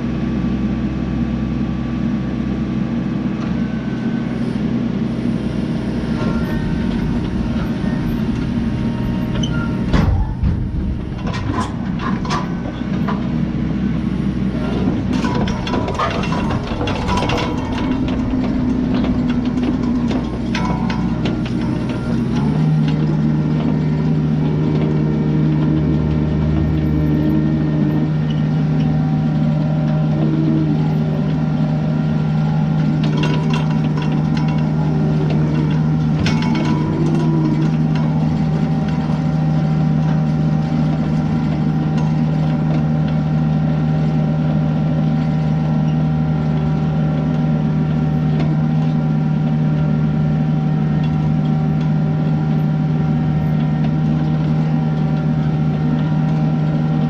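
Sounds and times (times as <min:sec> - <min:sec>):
excavator diesel engine running: 0:00.0 - 0:57.0
metallic clanks: 0:06.0 - 0:13.6, 0:14.4 - 0:23.2, 0:33.0 - 0:39.4.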